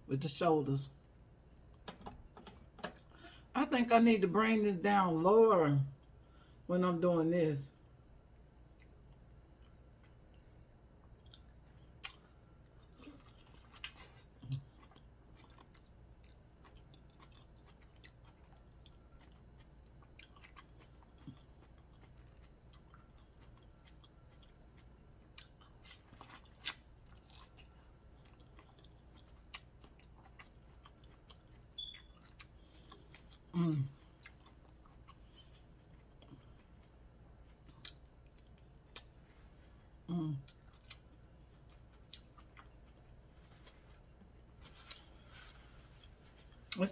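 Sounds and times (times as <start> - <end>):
person chewing: 8.4 - 39.2, 40.4 - 46.8.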